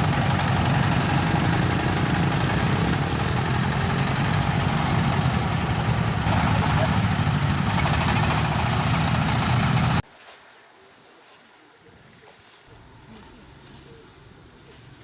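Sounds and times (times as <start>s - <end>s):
loud motor running: 0.0s - 10.0s.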